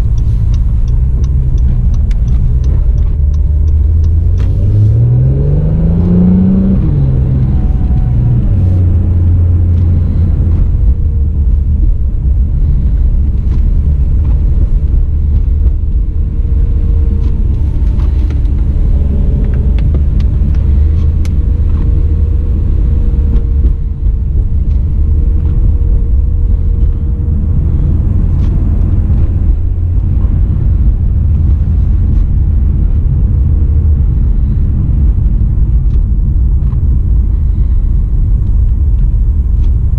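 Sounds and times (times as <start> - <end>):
car engine accelerating: 0.0 - 39.9
road noise: 0.0 - 39.9.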